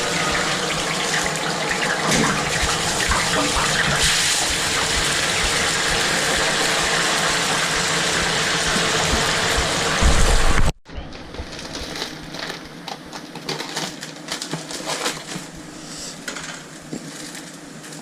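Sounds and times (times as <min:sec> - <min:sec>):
food sizzling: 0:00.0 - 0:10.8.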